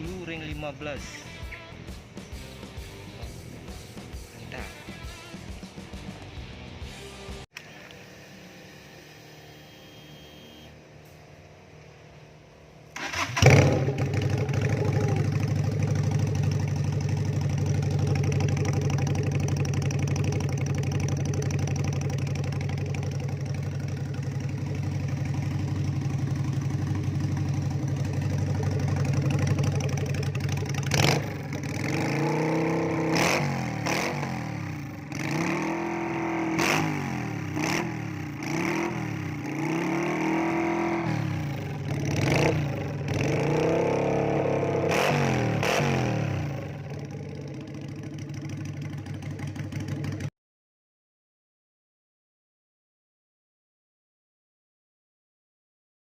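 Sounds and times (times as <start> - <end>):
motorcycle engine idling: 0.0 - 7.4, 13.0 - 45.8, 46.4 - 50.3
motorcycle engine starting: 0.0 - 7.7, 12.7 - 50.3
engine revving blips: 8.7 - 10.8, 30.8 - 46.9.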